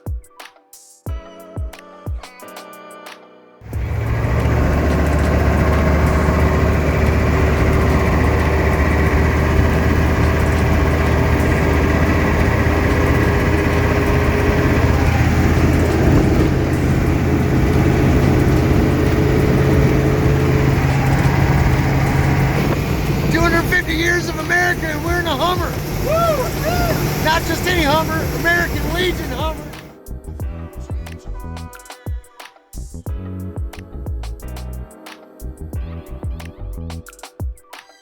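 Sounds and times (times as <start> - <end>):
low engine drone: 3.6 - 30.4.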